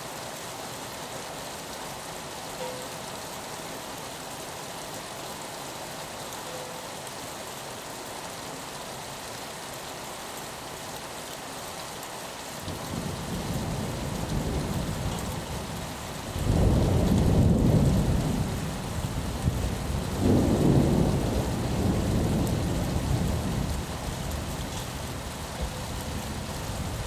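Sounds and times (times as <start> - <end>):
rain pattering on a window: 0.2 - 27.0
thunder rolling: 20.2 - 23.8.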